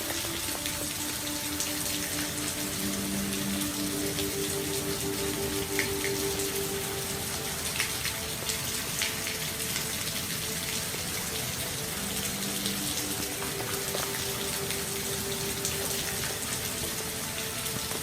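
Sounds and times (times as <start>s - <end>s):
faint steady tones: 0.0s - 18.0s
steady rain patter: 0.0s - 18.0s.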